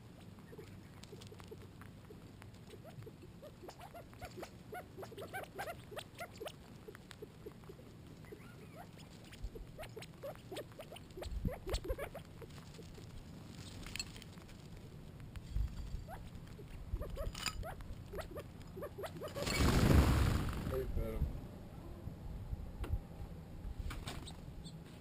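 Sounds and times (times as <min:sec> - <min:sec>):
quail chirping: 0:00.0 - 0:13.1, 0:16.1 - 0:19.7.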